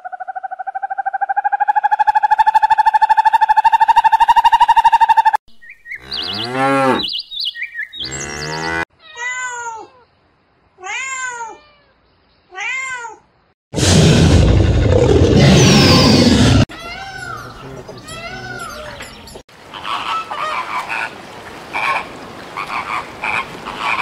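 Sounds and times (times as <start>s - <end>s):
chirps: 3.3s - 8.8s
loud rough noise: 13.8s - 16.7s.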